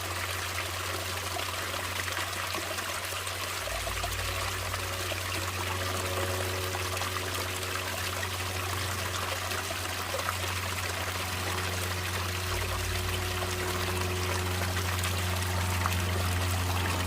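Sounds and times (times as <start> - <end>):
running water trickling: 0.0 - 17.0
low rumble: 3.5 - 17.0.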